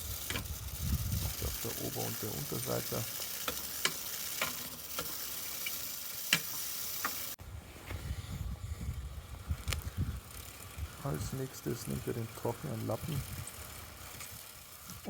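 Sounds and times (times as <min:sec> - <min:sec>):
bicycle chain clicks: 0:00.0 - 0:07.4, 0:08.9 - 0:15.0
chain cleaner scrubbing hiss: 0:00.0 - 0:07.4, 0:10.3 - 0:15.0.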